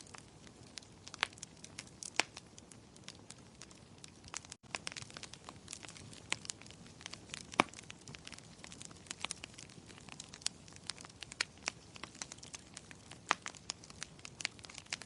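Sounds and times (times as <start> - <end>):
fire crackling: 0.0 - 15.0.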